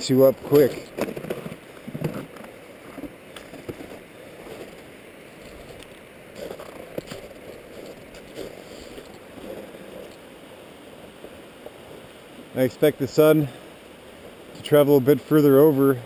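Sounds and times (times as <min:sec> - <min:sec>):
river flowing: 0:00.0 - 0:16.0
soft knocks or crunches: 0:00.8 - 0:10.2.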